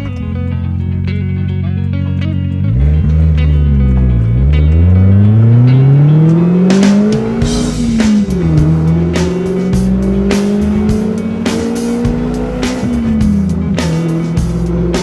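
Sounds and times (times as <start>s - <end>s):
car engine accelerating: 0.0s - 15.0s
music: 0.0s - 15.0s.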